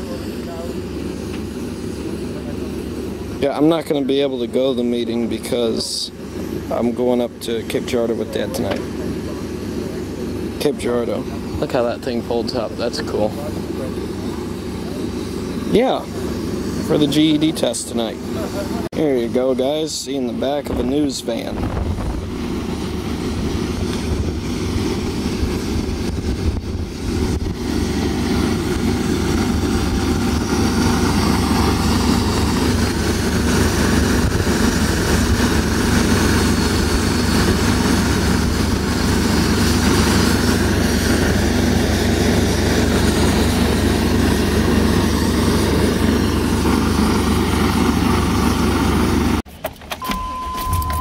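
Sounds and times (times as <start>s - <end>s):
low engine drone: 0.0s - 51.0s.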